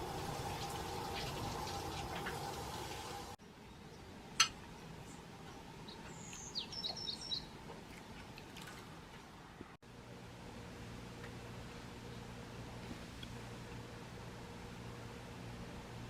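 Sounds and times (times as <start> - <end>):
water splashing: 0.0 - 3.4, 6.9 - 9.2
high thin bird chirps: 5.9 - 7.6.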